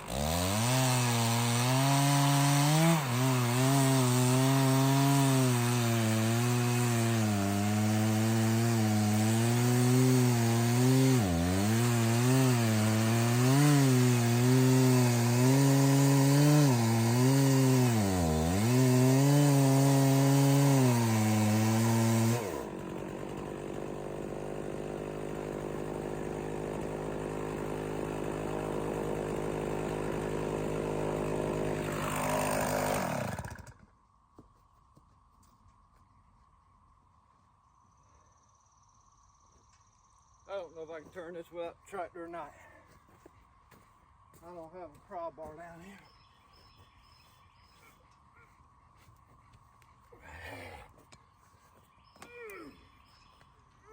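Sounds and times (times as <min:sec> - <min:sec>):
chainsaw idling: 0:00.0 - 0:33.9
chainsaw winding down: 0:00.0 - 0:33.9
chainsaw cutting log: 0:00.0 - 0:34.0.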